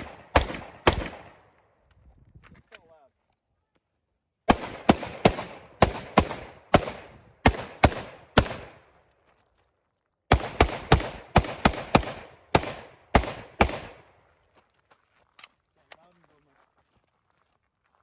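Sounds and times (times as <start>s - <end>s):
rapid rifle shots: 0.0s - 1.5s, 4.5s - 8.8s, 10.3s - 14.1s.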